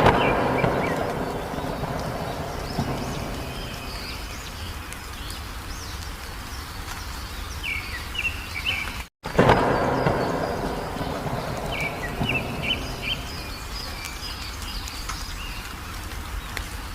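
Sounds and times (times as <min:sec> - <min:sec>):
loud noisy sound: 0:00.0 - 0:04.4
low background rumble: 0:00.0 - 0:06.0, 0:09.6 - 0:14.8
birds chirping and whistling: 0:00.0 - 0:16.9.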